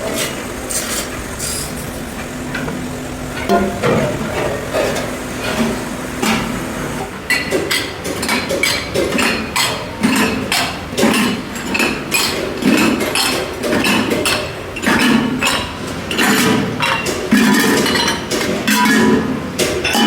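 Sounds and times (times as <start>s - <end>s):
workshop din: 0.0s - 20.0s
hammer striking metal: 3.4s - 4.4s.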